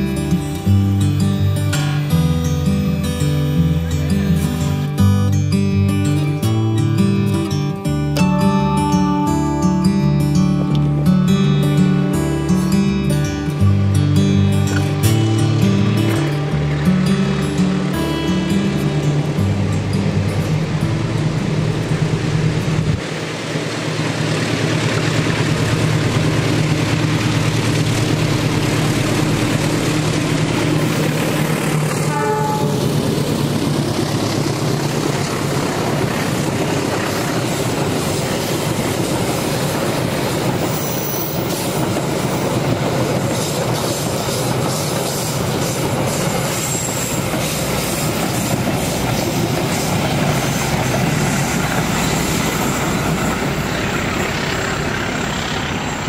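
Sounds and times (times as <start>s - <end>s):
locomotive engine hum: 0.0s - 56.0s
train wheels clattering on track: 21.9s - 56.0s
faint wheel squeal: 43.4s - 56.0s.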